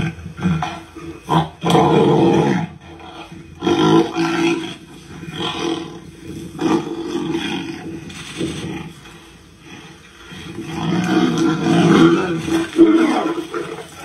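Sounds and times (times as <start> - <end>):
tigers roaring and snarling: 0.0 - 14.0.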